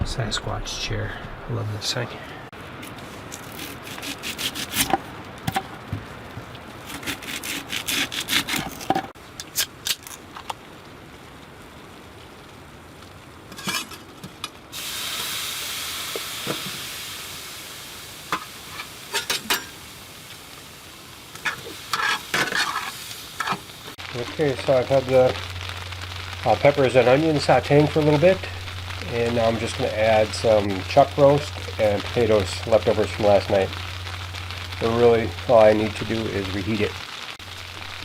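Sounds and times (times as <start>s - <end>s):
vegetables sizzling in a pan: 11.0s - 38.0s
stirring clicks and scrapes: 21.4s - 24.8s.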